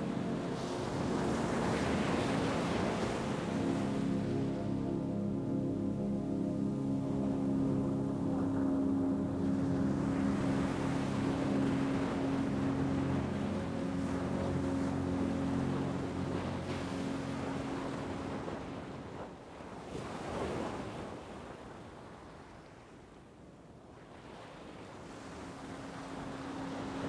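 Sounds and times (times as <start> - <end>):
steady low hum: 0.0 - 19.1, 25.3 - 27.0
ocean waves washing in: 24.6 - 27.0.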